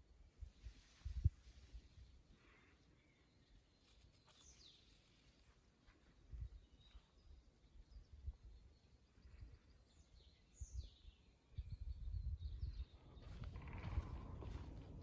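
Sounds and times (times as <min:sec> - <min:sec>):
low rumbling: 0:12.1 - 0:15.0.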